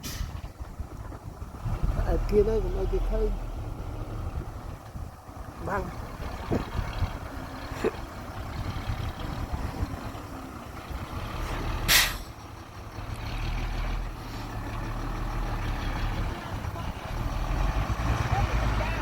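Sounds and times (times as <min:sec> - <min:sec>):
air brake hiss: 0:00.0 - 0:00.4, 0:11.9 - 0:12.3
diesel truck engine running: 0:00.0 - 0:19.0.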